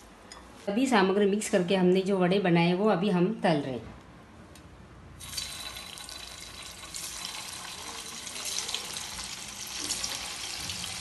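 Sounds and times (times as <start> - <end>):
food sizzling in hot oil: 5.2 - 11.0.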